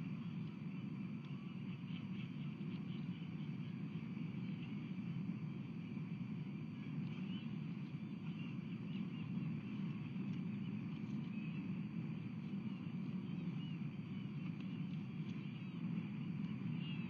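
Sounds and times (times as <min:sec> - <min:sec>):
low background rumble: 0:00.0 - 0:17.0
faint high bird chirps: 0:06.7 - 0:17.0.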